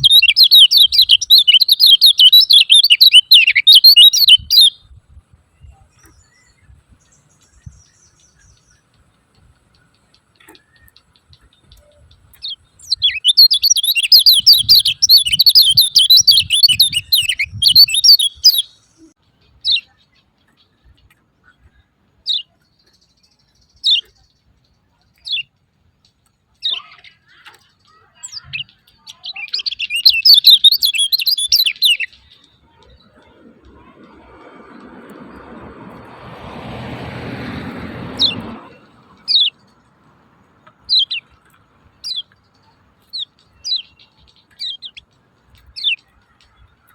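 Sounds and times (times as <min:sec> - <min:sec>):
small bird chattering chirps: 0:00.0 - 0:04.8, 0:09.8 - 0:20.8, 0:21.4 - 0:25.5, 0:26.6 - 0:33.9, 0:38.2 - 0:39.8, 0:40.7 - 0:46.6.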